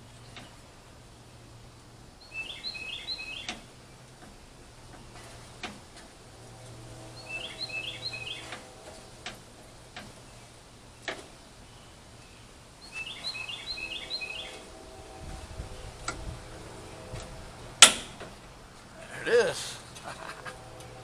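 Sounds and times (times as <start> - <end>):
bird chirping: 2.2 - 3.7, 6.8 - 8.8, 10.2 - 17.2.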